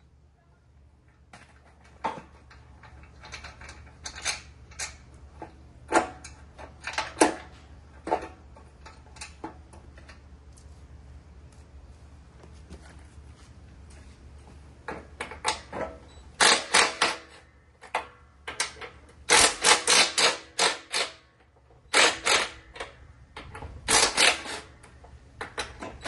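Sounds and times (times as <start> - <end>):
faint low hum: 0.0 - 16.4.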